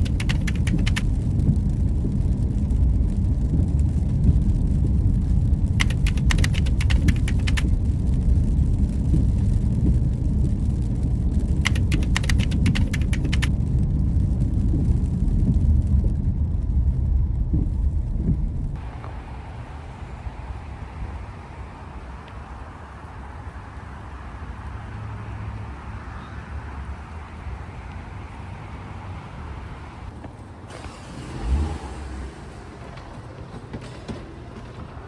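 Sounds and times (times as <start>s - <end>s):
rapid clicking: 0.0s - 18.8s
car road rumble: 0.0s - 35.0s.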